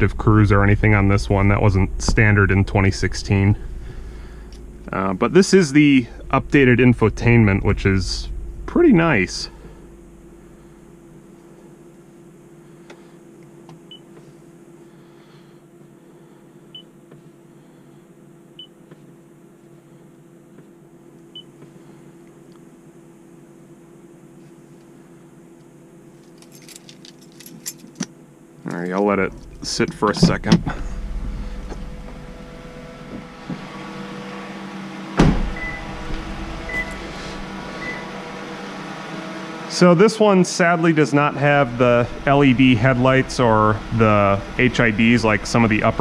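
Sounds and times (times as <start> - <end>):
idling car cabin hum: 0.0 - 39.2, 39.8 - 46.0
loud thump: 29.4 - 32.2, 35.2 - 36.4.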